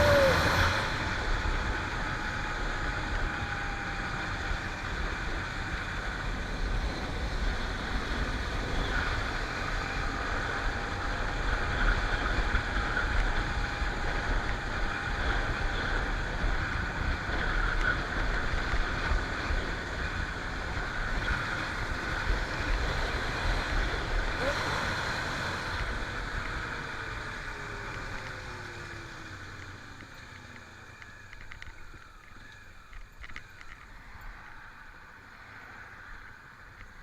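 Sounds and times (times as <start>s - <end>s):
wind rush on microphone: 0.0s - 29.3s
motorcycle engine rumble: 0.0s - 37.0s.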